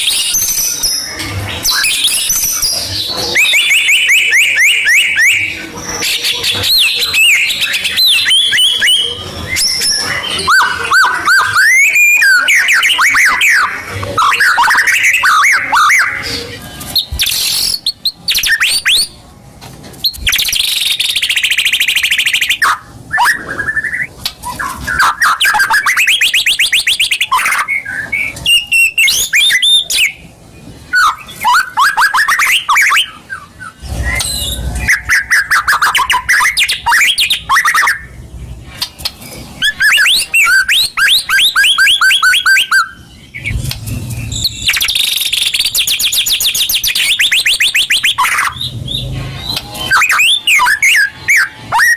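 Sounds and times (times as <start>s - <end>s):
songbird trills and whistles: 0.0s - 19.2s, 20.0s - 30.3s, 30.9s - 38.2s, 38.8s - 43.6s, 44.2s - 51.9s.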